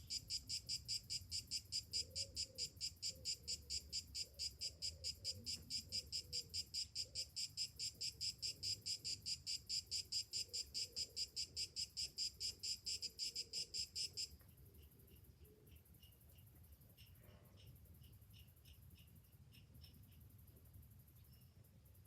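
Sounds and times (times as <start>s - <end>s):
cicada singing: 0.0s - 21.5s.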